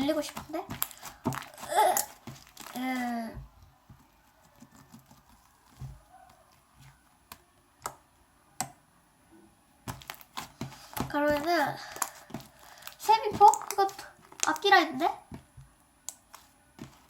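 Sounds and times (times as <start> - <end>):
small objects clicking and tapping: 9.9 - 14.7.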